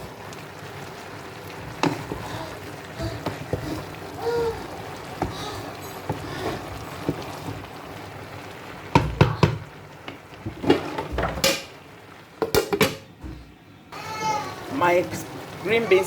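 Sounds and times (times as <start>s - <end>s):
utensil scraping a pot: 1.6s - 7.7s.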